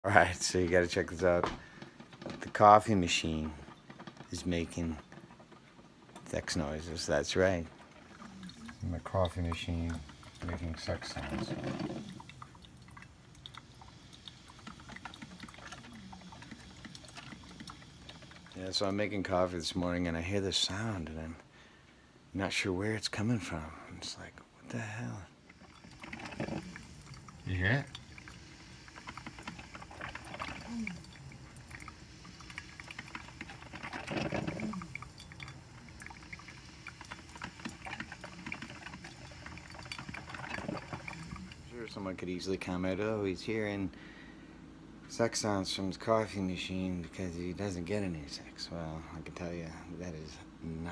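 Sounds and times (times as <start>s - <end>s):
coffee maker gurgling: 0.0s - 21.3s, 23.0s - 43.9s, 45.3s - 50.9s.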